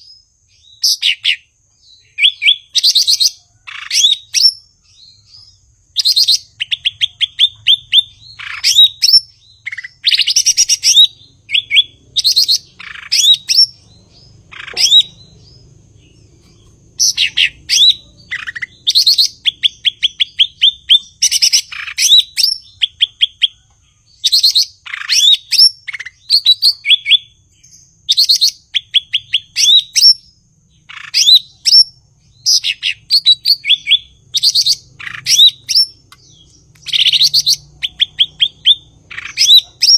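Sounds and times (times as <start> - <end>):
bird singing rapid chattering notes: 0.0 - 39.9
faint low hum: 1.6 - 25.0.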